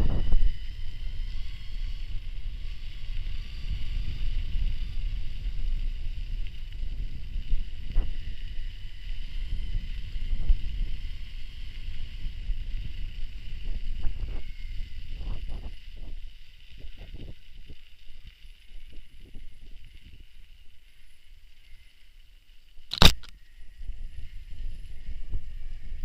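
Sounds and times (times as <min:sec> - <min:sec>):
wind buffeting microphone: 0:00.0 - 0:16.2.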